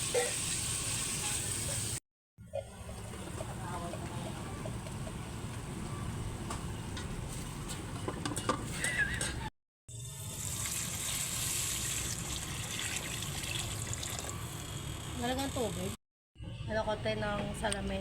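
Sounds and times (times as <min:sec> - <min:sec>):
food sizzling in a pan: 0:00.0 - 0:02.0, 0:09.9 - 0:12.4.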